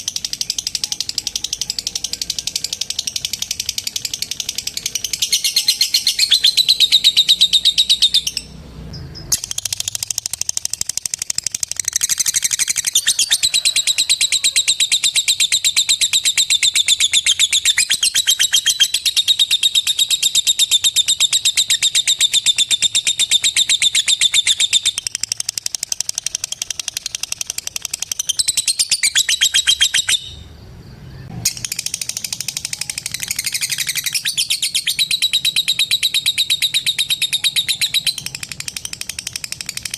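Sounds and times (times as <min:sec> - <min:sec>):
bird rattling chirps: 0:09.2 - 0:14.3, 0:14.9 - 0:30.3, 0:31.5 - 0:39.9.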